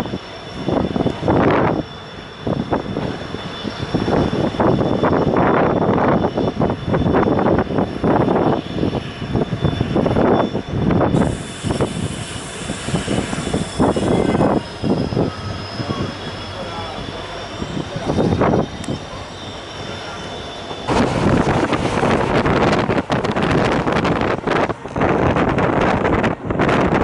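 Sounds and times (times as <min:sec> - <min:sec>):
faint high whine: 0:00.0 - 0:24.4
moving passenger train: 0:00.0 - 0:27.0
wind gusting across microphone: 0:00.0 - 0:27.0.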